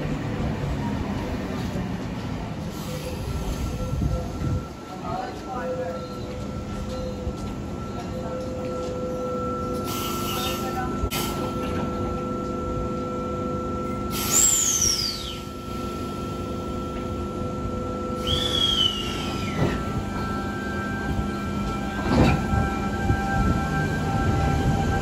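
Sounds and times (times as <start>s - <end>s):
train pulling away rumble: 0.0s - 25.0s
train electrical hum: 2.0s - 25.0s
falling whistle-like tones: 18.2s - 19.8s
train clunk: 18.2s - 23.2s.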